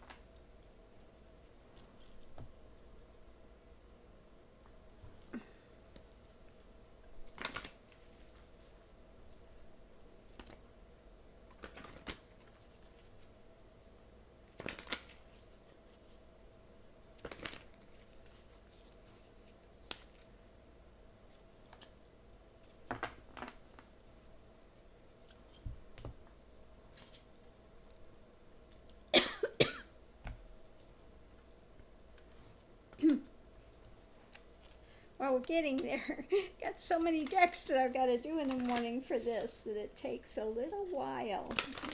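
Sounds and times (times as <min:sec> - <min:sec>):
faint room hum: 0:00.0 - 0:41.9
cards rustling and tapping: 0:11.5 - 0:13.2, 0:38.4 - 0:39.5.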